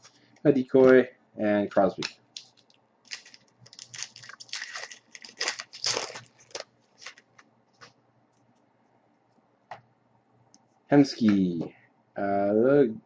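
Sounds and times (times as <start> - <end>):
wrapper crinkling as torn open: 2.4 - 7.4.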